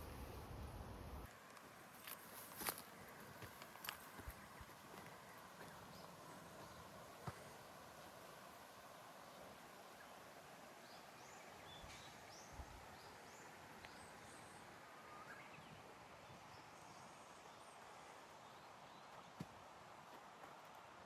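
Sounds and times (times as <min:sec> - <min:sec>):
birds chirping: 0:02.8 - 0:08.4.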